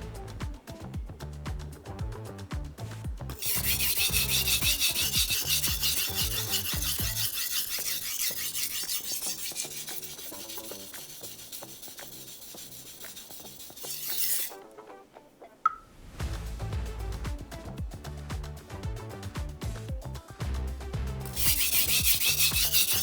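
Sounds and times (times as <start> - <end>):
knife rubbed on whetstone: 3.4 - 14.6, 21.3 - 23.0.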